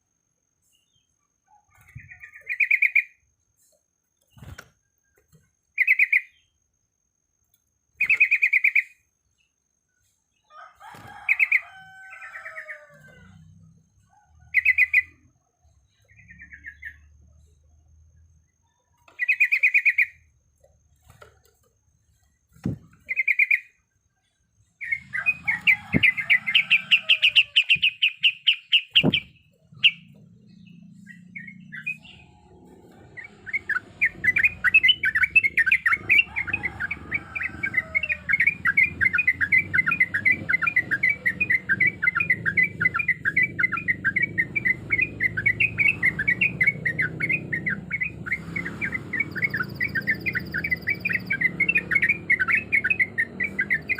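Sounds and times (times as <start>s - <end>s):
bird calling and trilling: 0.9s - 3.2s, 5.7s - 6.5s, 8.0s - 9.0s, 11.0s - 17.6s, 18.8s - 20.3s, 22.6s - 23.8s, 24.6s - 53.9s
low steady rumble: 29.0s - 53.9s.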